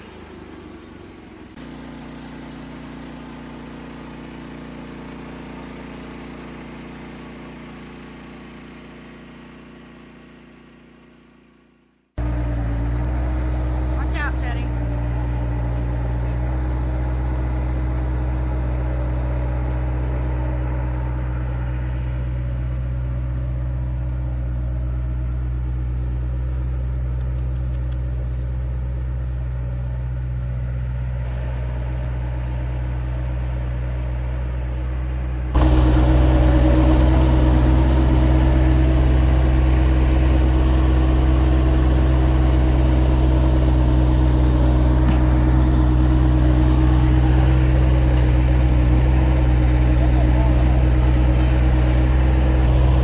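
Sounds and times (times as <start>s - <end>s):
engine running: 0.0s - 53.0s.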